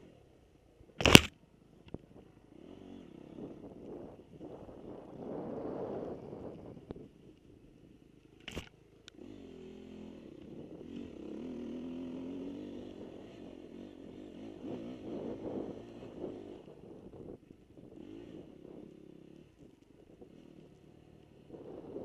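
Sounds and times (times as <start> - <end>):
sharp click: 1.0 - 2.0, 8.4 - 9.2
dirt bike engine revving: 2.3 - 6.8, 8.5 - 22.0.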